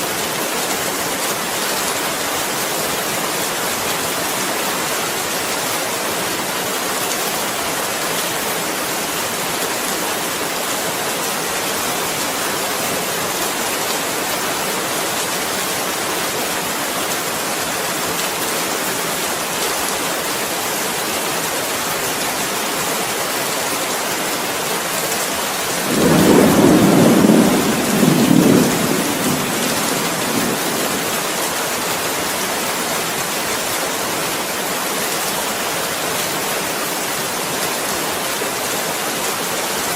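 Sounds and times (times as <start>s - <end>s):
steady rain falling: 0.0s - 39.9s
thunder rumbling: 25.8s - 31.3s.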